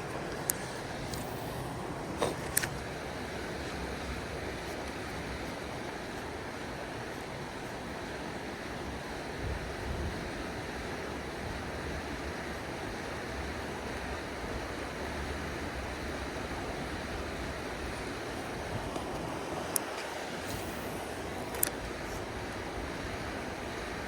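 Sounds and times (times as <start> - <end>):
creek water rushing over rocks: 0.0 - 24.0
wind rumble on microphone: 9.3 - 12.0.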